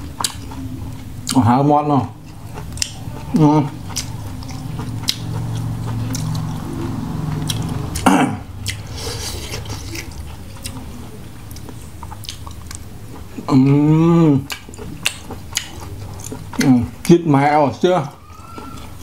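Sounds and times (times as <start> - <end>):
low hum: 0.0 - 14.3
person chewing with wet smacking: 0.0 - 19.0.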